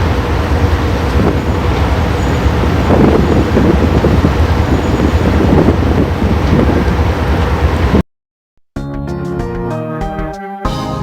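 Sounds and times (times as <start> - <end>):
low engine rumble: 0.0 - 8.0
wind on microphone: 1.0 - 8.0.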